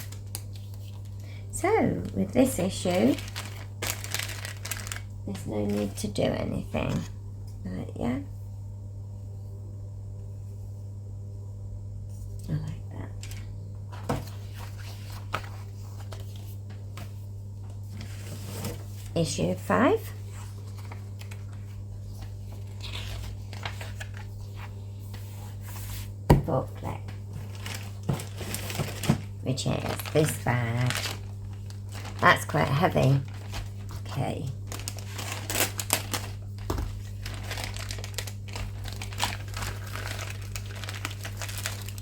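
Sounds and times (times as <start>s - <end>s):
plastic bag crinkling: 0.0s - 6.0s, 13.2s - 13.5s, 20.3s - 24.5s, 27.4s - 42.0s
plastic packaging rustling: 0.0s - 6.1s, 13.2s - 26.2s, 26.9s - 42.0s
low electrical hum: 0.0s - 42.0s.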